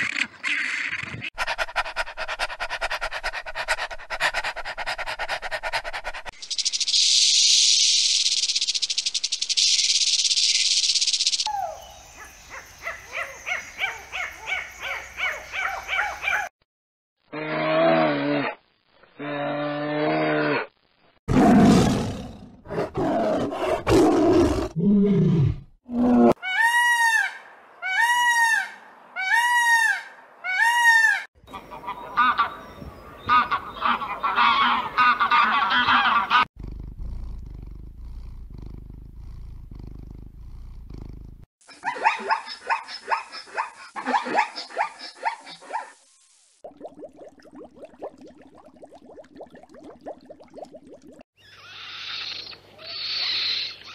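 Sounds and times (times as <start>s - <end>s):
bear roaring: 21.3s - 26.4s
low animal rumble: 36.6s - 41.5s.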